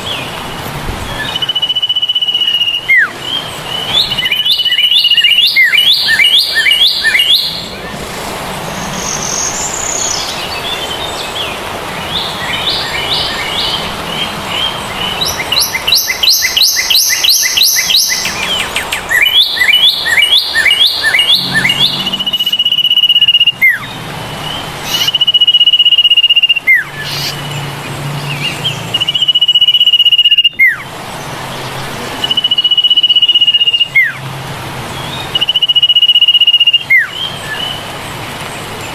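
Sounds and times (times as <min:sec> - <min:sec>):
birds chirping rapid high notes: 0:00.0 - 0:38.9
long high whistled notes: 0:19.2 - 0:23.9.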